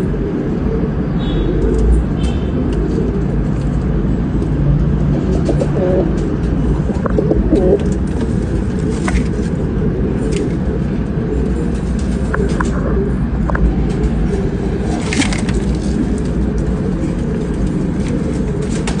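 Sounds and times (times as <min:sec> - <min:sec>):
pigeons cooing: 0:00.0 - 0:19.0
steady low rumble: 0:00.0 - 0:19.0.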